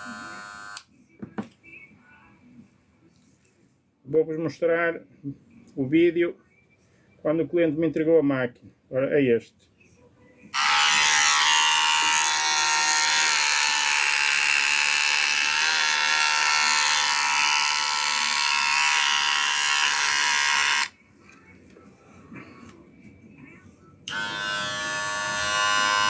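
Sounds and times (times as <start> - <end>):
hair clipper buzzing: 0.0 - 0.9, 10.6 - 21.0, 24.1 - 26.0.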